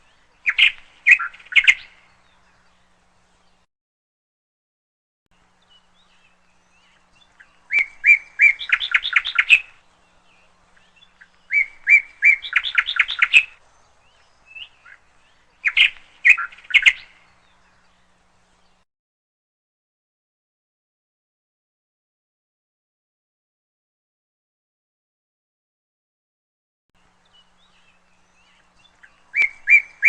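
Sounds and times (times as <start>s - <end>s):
canaries chirping: 27.8s - 30.0s.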